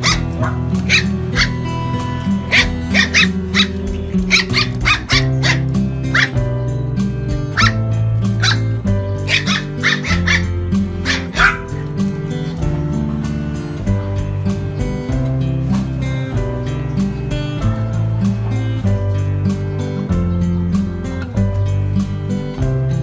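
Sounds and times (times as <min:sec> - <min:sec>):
small puppy barking: 0:00.0 - 0:01.7, 0:02.4 - 0:06.4, 0:07.5 - 0:07.8, 0:08.4 - 0:11.8
background music: 0:00.0 - 0:23.0.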